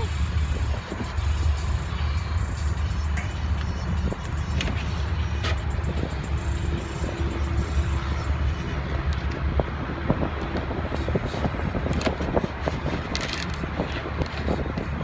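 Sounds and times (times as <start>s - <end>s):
traffic rumble: 0.0s - 15.0s
wind on microphone: 0.0s - 15.0s
small clicks and rustles: 12.9s - 14.9s.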